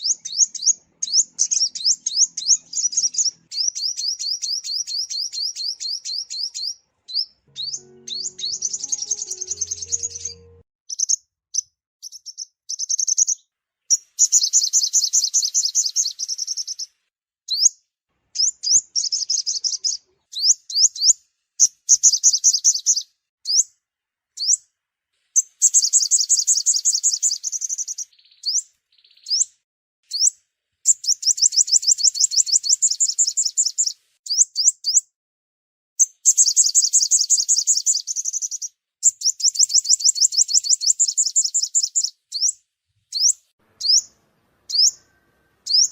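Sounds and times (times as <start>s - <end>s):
sunbird trilled song: 0.0s - 16.9s, 25.4s - 35.1s, 36.0s - 45.9s.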